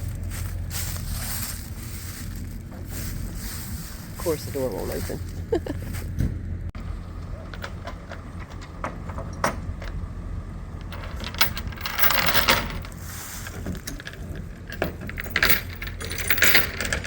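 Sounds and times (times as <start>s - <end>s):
low steady rumble: 0.0s - 17.0s
loose metal clanking and jangling: 10.7s - 17.0s.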